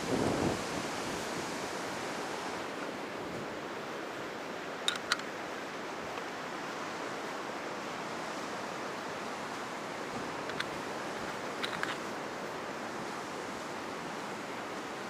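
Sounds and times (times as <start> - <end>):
ocean surf washing onto beach: 0.0 - 15.0.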